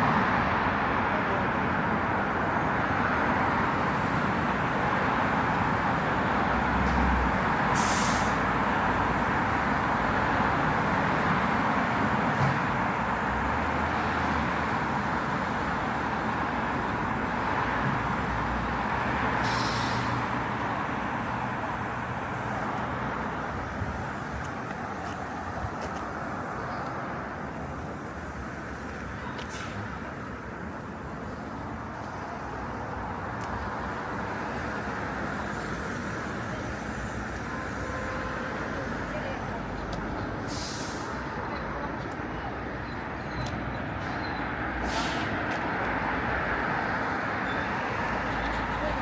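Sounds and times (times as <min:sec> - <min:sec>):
cars passing: 0:00.0 - 0:49.0
short hiss: 0:07.8 - 0:08.4, 0:19.4 - 0:20.2, 0:40.5 - 0:41.2, 0:44.8 - 0:45.4.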